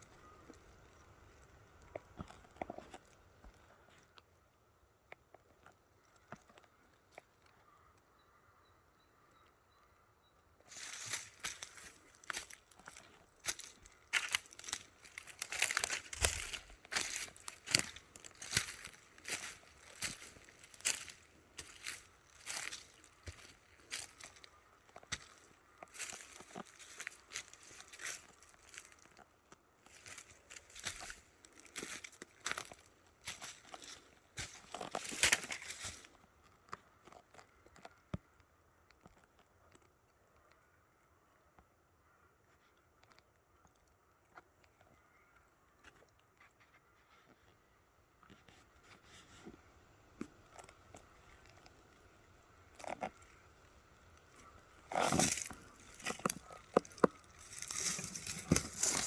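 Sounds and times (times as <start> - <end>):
rustling and crinkling: 0.0 - 4.2, 10.7 - 40.7, 42.6 - 59.0
footsteps on crunchy surface: 1.4 - 4.0, 10.7 - 36.2, 48.5 - 59.0.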